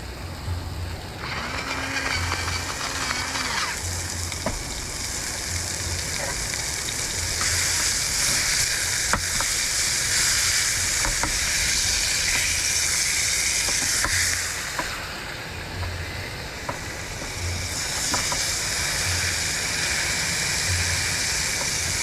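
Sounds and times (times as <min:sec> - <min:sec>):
patties sizzling in a pan: 0:03.8 - 0:14.7.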